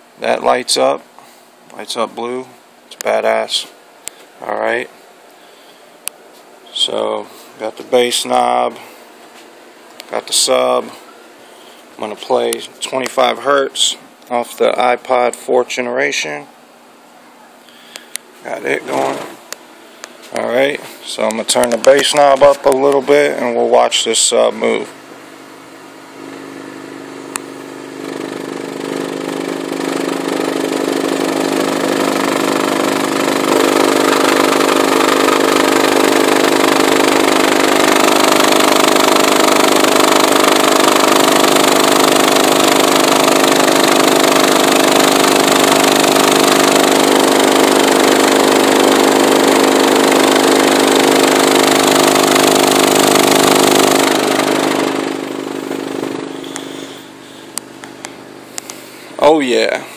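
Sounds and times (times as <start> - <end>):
subwoofer buzzing drone: 1.8 - 59.9.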